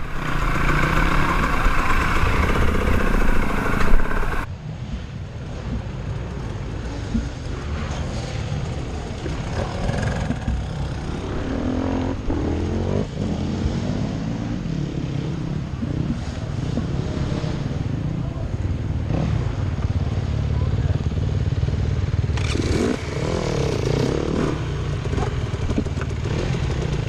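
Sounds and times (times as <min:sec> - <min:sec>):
dirt bike engine revving: 0:00.0 - 0:04.5, 0:22.4 - 0:27.0.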